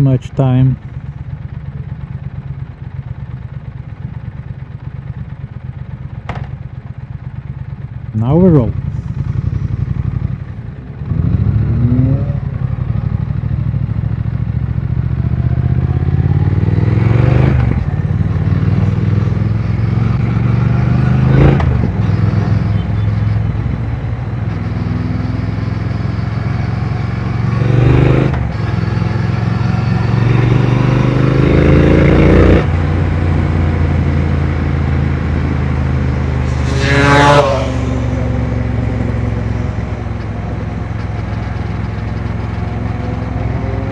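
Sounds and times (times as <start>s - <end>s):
motorcycle engine accelerating: 0.0s - 43.9s.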